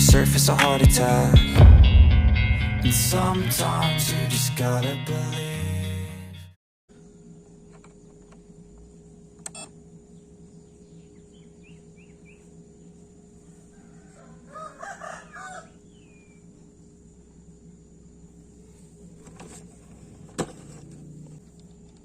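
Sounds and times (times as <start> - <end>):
steady low hum: 6.9 - 22.0
rooster crowing: 13.6 - 16.1.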